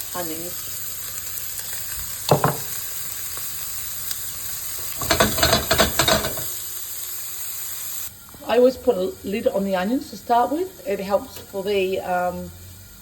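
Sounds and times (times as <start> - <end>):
onions sizzling in oil: 0.0 - 13.0
knock on pan: 2.3 - 2.8, 5.0 - 6.5
scraping and clattering in pan: 4.8 - 6.6.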